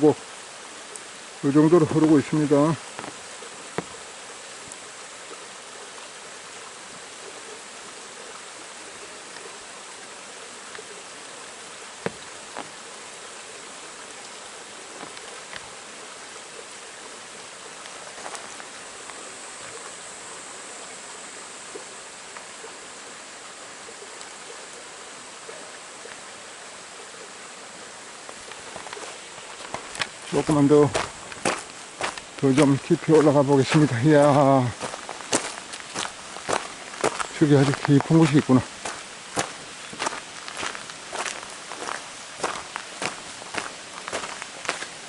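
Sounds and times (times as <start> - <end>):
stream flowing over rocks: 0.0 - 45.0
faint ticks: 14.0 - 15.7, 24.1 - 24.8, 28.2 - 30.2.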